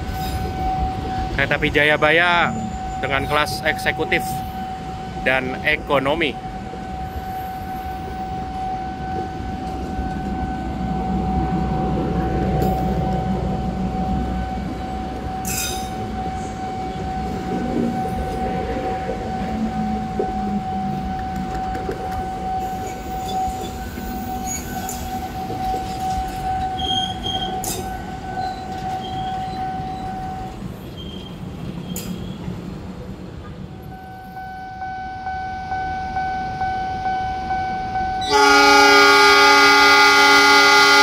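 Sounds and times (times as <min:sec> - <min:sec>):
steady high tone: 0:00.0 - 0:30.6
train wheels rumbling on rails: 0:00.0 - 0:34.4.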